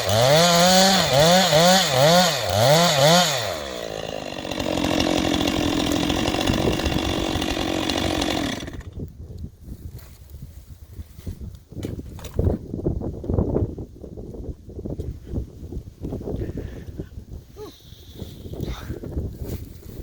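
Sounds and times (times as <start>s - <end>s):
chainsaw revving: 0.0s - 9.0s.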